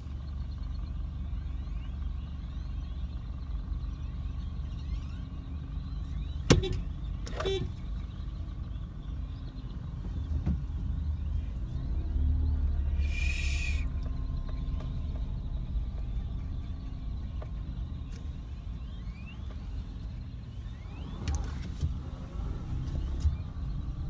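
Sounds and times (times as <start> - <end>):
birds calling: 0.0 - 24.0
low rumble: 10.6 - 20.3
faint rising chirps: 11.2 - 19.8
hiss-like burst: 13.0 - 13.8.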